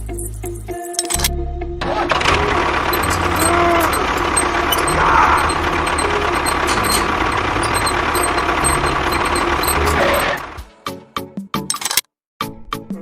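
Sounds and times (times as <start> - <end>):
tractor engine idling: 1.8 - 10.6.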